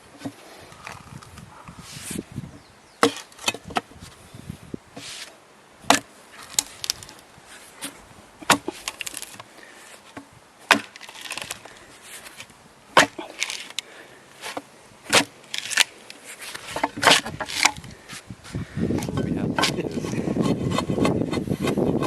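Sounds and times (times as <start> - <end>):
hive tool cracking wood: 5.9 - 7.2, 7.8 - 9.5, 10.1 - 13.9, 14.5 - 18.0
metal scraping on wood: 14.4 - 18.2, 18.9 - 22.0.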